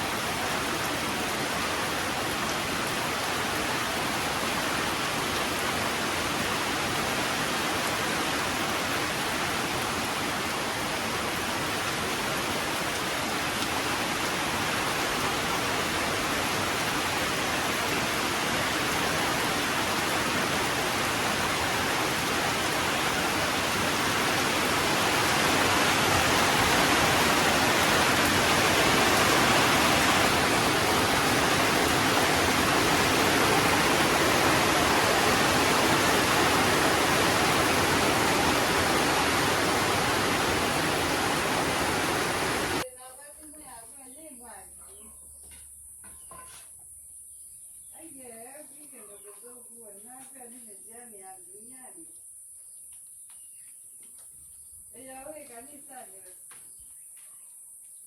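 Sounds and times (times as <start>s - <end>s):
rain falling: 0.0s - 42.8s.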